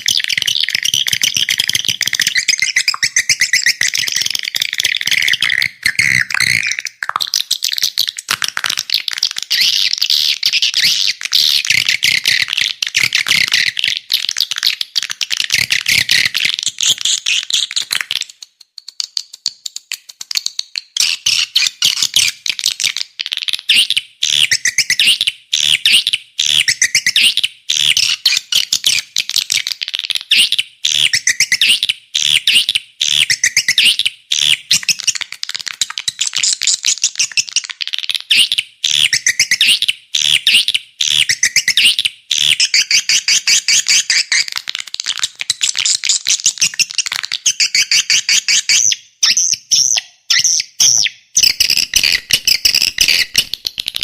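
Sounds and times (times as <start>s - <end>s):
swiftlet chirps and twitters: 0.0s - 8.2s, 45.6s - 53.6s.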